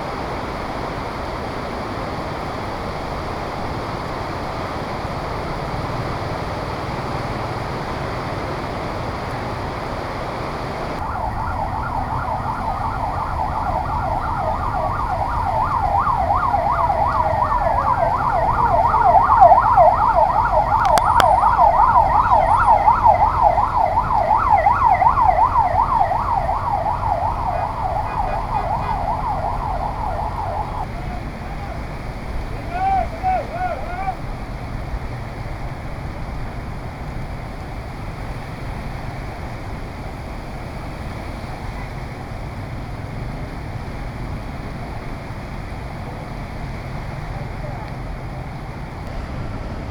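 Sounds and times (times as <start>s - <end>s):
street noise: 0.0s - 49.9s
emergency siren warbling yelp: 2.4s - 34.3s.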